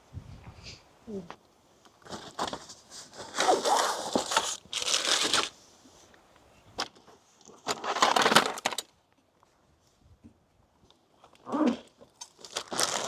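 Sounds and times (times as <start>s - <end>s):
packaging rustling and crinkling: 2.0s - 5.6s, 7.4s - 8.9s, 11.8s - 13.0s.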